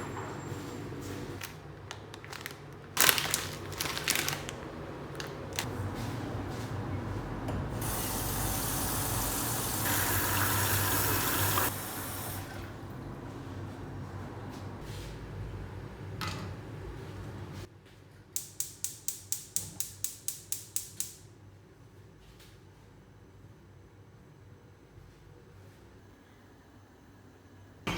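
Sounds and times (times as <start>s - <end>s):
water running from tap: 7.8s - 13.1s.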